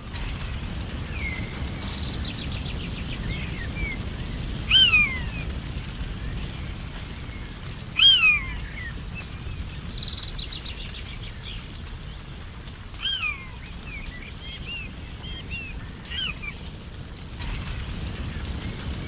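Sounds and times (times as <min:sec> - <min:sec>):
steady low rumble: 0:00.0 - 0:19.0
birds chirping: 0:00.1 - 0:19.0
falling whistled bird call: 0:04.7 - 0:05.4.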